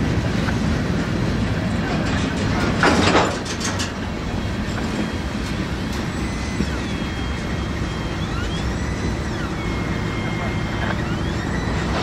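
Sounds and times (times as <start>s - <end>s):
freight train rumble: 0.0s - 12.0s
wheels clacking over rail joints: 0.0s - 12.0s
faint high wheel squeals: 4.2s - 12.0s.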